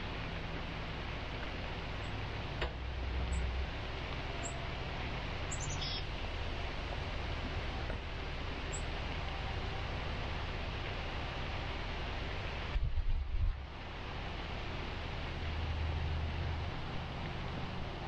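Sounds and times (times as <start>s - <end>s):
outdoor hiss with low rumble: 0.0s - 18.0s
small bird chirping: 5.5s - 6.1s.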